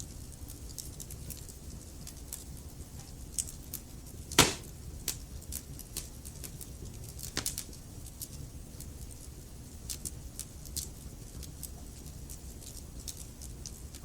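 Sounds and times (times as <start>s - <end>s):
wood fire crackling: 0.3s - 14.0s
loud pop of fire: 4.4s - 4.8s.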